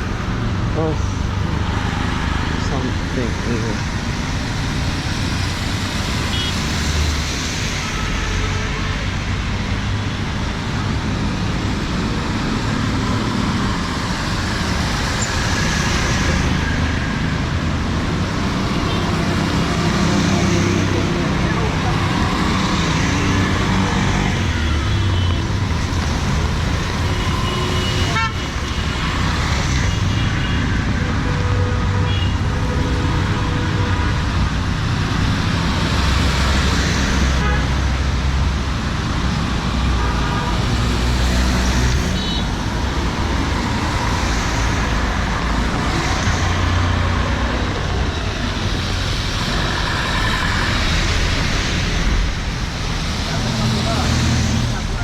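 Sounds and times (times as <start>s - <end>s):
road noise: 0.0s - 55.0s
vehicle engines running: 10.9s - 40.0s
car horns tooting: 27.0s - 28.6s.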